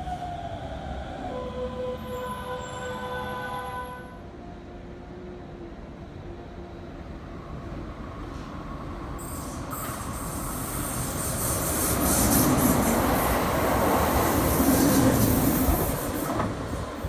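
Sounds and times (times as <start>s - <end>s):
electric train passing: 8.8s - 17.0s.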